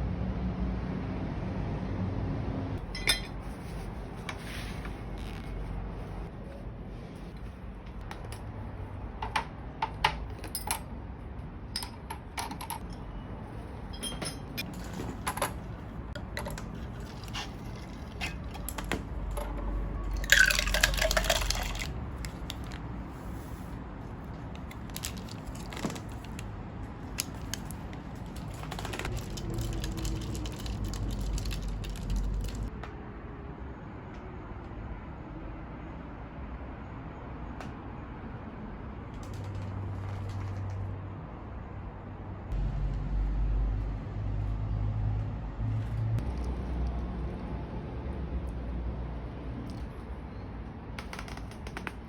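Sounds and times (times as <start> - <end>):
tableware clinking: 2.8 - 3.4, 13.9 - 15.6
liquid poured into a cup: 20.1 - 22.8.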